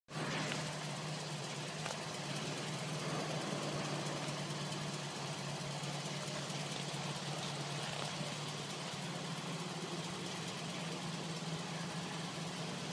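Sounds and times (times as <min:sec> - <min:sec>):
car engine idling: 0:00.1 - 0:12.9.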